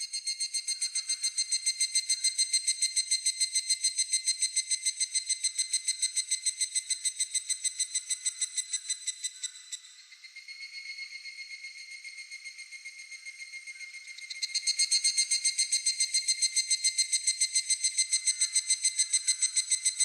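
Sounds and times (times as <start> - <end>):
cicada calling: 4.0 - 20.0.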